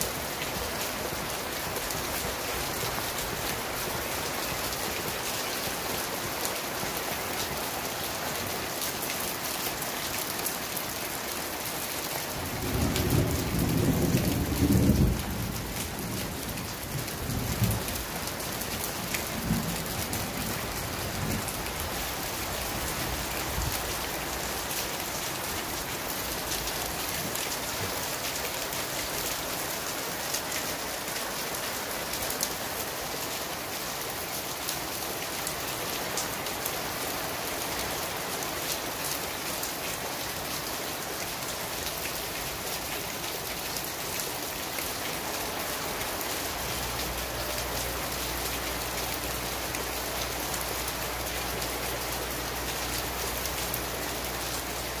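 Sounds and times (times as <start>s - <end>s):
heavy rain falling: 0.0s - 55.0s
thunder rumbling: 12.5s - 18.4s.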